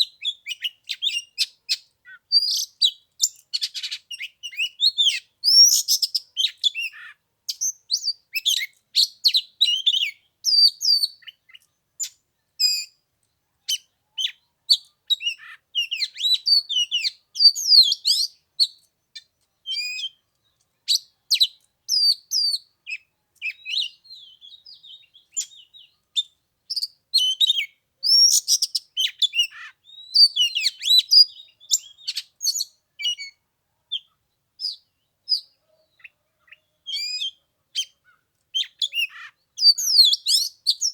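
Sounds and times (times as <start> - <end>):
bird singing whistles and chirps: 0.0 - 13.0, 13.7 - 33.4, 34.0 - 40.9.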